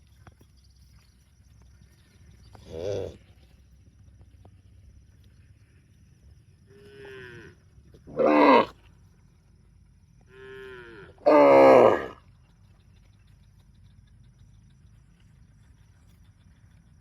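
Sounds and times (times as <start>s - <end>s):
cow mooing: 6.7s - 8.7s, 10.3s - 12.2s.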